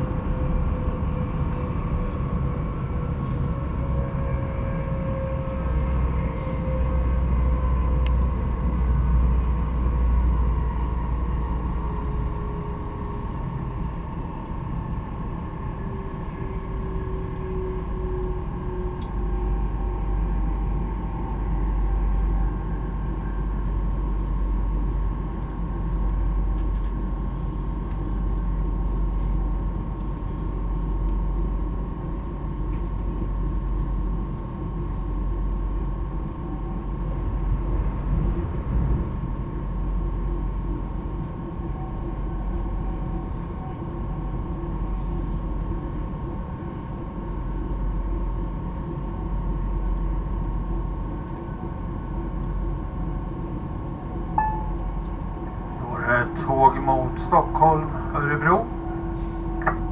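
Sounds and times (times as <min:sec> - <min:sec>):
train cabin low rumble: 0:00.0 - 0:59.9
steady high tone: 0:54.4 - 0:55.0.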